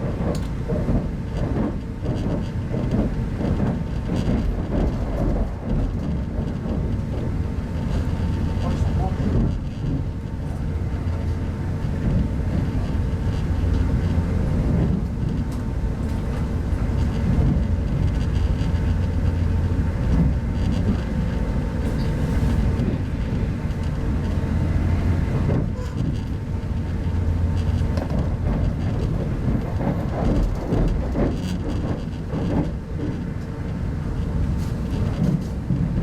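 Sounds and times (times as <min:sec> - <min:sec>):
train wheels rumbling: 0:00.0 - 0:36.0.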